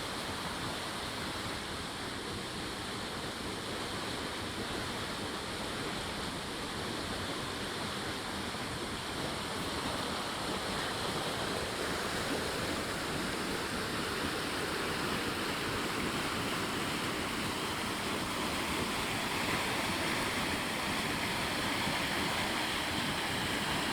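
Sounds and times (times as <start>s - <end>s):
stream water flowing: 0.0s - 23.9s.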